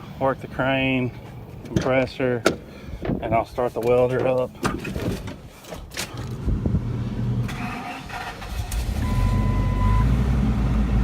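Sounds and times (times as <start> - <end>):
engine cranking and idling: 5.8 - 10.1.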